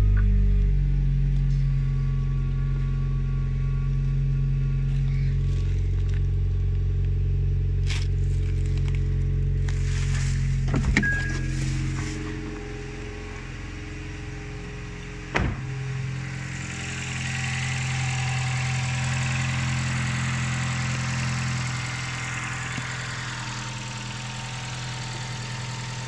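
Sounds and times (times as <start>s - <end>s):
car engine fast idle: 9.7s - 26.0s
short beep: 11.0s - 13.3s.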